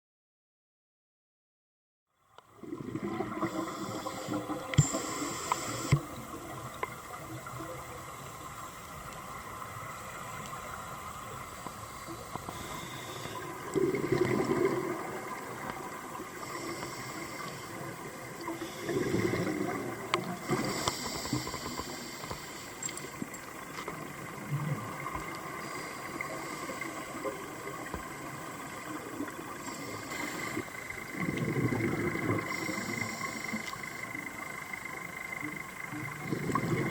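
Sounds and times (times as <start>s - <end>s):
steady water noise: 2.2s - 36.9s
underwater bubbles gurgling: 2.4s - 36.9s.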